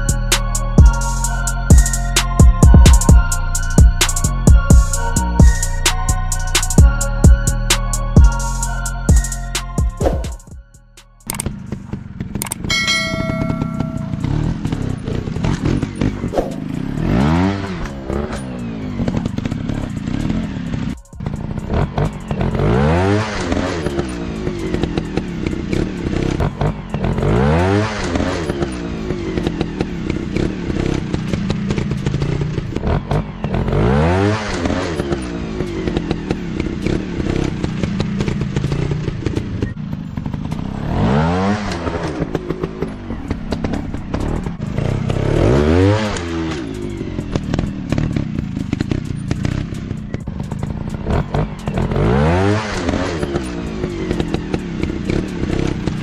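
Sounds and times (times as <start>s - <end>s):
dirt bike engines revving: 11.2s - 56.0s.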